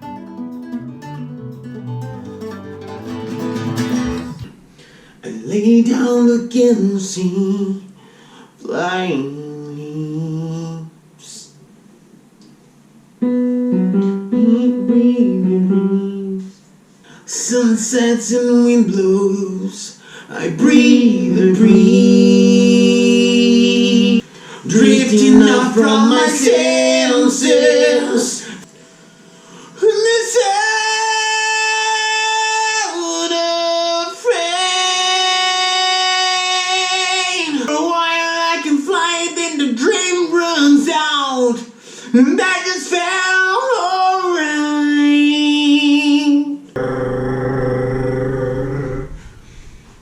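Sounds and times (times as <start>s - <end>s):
keyboard sustained chords: 0.0s - 4.5s, 20.9s - 23.2s
person singing: 14.3s - 16.5s, 20.4s - 28.6s, 46.8s - 49.4s
high wordless singing: 17.3s - 28.7s, 29.7s - 39.4s.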